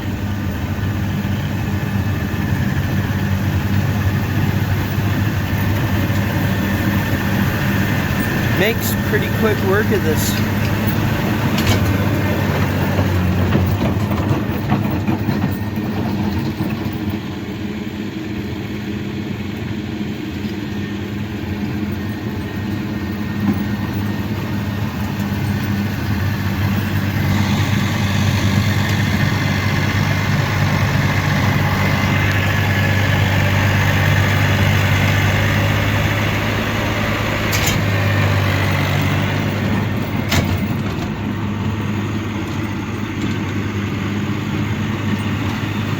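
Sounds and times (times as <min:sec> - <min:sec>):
snowblower engine running: 0:00.0 - 0:45.9.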